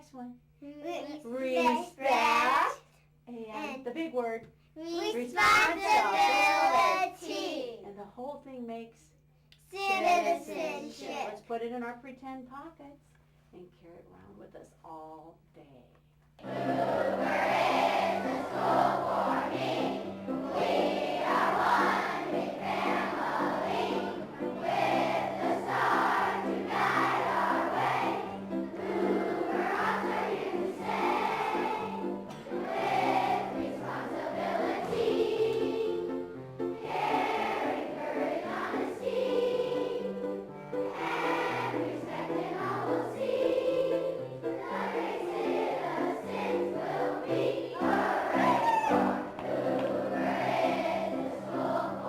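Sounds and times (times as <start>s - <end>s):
children singing: 5.4s - 7.4s, 16.4s - 36.2s, 36.8s - 40.2s, 40.8s - 52.0s
instrumental accompaniment: 16.4s - 52.0s.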